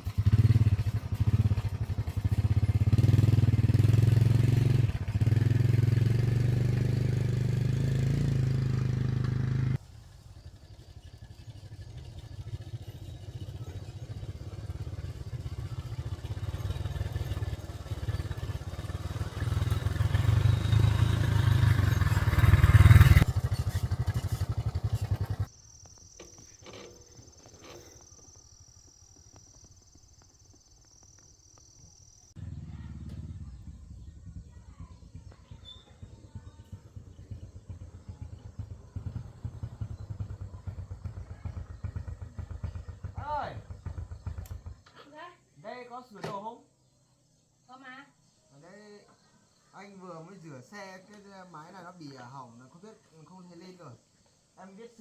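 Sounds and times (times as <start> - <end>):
motorcycle engine running: 0.0 - 45.2.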